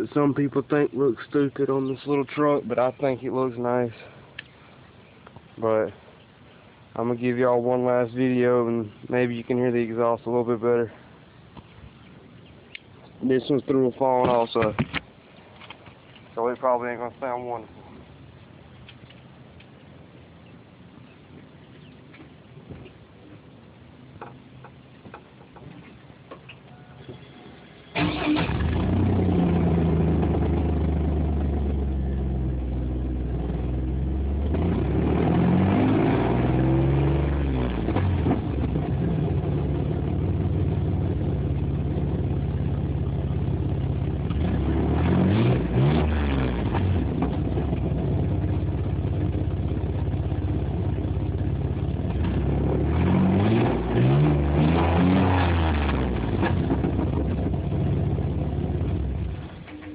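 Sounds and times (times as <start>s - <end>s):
engine starting idling and revving: 27.6s - 59.7s.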